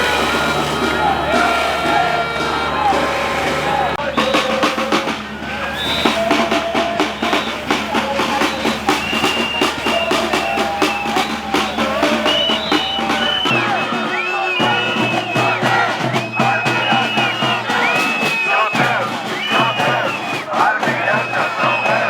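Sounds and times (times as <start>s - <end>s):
held higher tones: 0.0s - 15.1s
drum beat: 0.0s - 22.0s.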